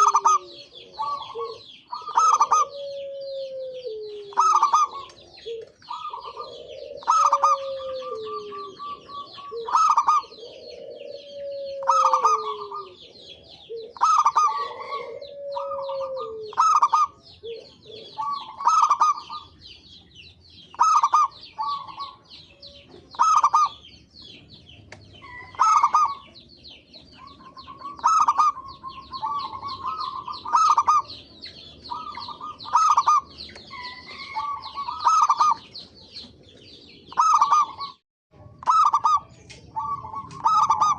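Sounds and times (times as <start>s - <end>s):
high bird twittering: 0.0s - 3.2s, 13.8s - 36.3s, 36.9s - 38.0s, 38.6s - 40.9s
dove cooing: 0.0s - 40.9s.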